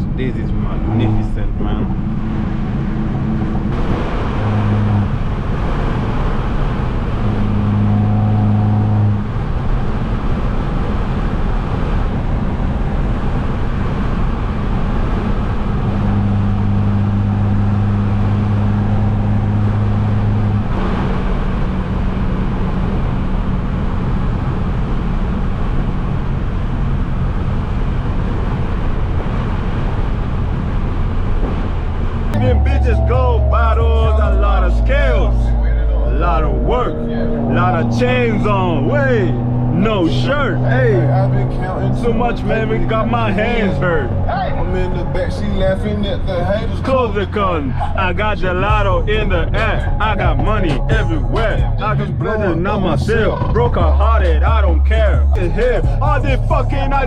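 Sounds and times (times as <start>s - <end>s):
car exhaust drone: 0.0s - 57.0s
road and tyre noise: 0.0s - 57.0s.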